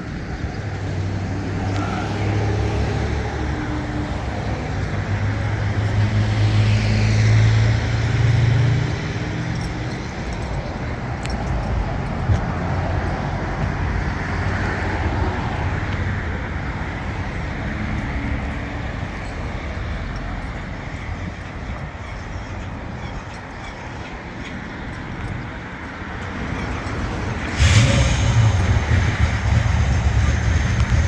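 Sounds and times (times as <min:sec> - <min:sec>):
road noise: 0:00.0 - 0:31.0
car engine running: 0:27.6 - 0:31.0.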